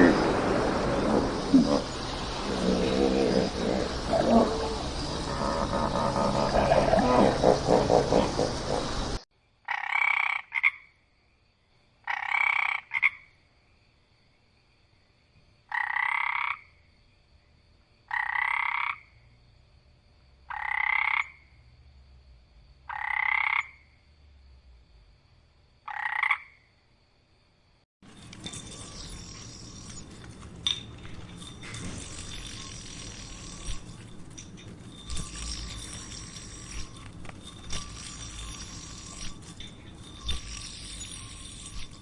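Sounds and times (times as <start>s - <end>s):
frog croaking: 9.6s - 11.0s, 12.0s - 13.3s, 15.7s - 16.7s, 18.1s - 19.2s, 20.5s - 21.6s, 22.8s - 24.0s, 25.8s - 26.7s.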